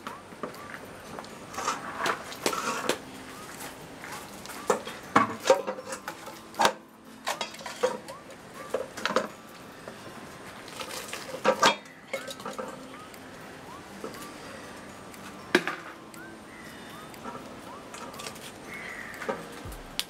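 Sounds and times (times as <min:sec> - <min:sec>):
metal bowls clinking: 0:04.1 - 0:13.0.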